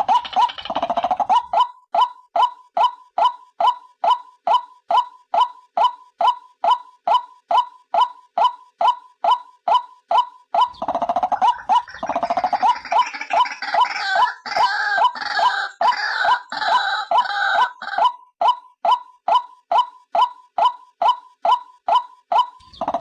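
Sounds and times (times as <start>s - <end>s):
rough croaking bird calls: 10.7s - 17.3s
waterhen calling: 10.7s - 18.1s.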